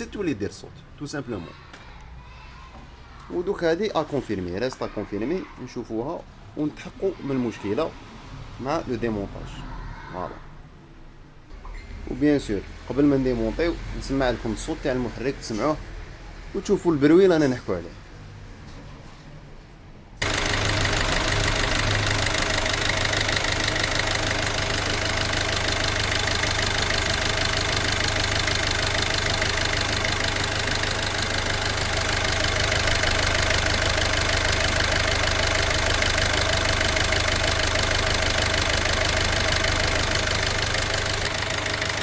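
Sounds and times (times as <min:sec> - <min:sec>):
diesel engine idling with knocking: 0:20.2 - 0:42.0.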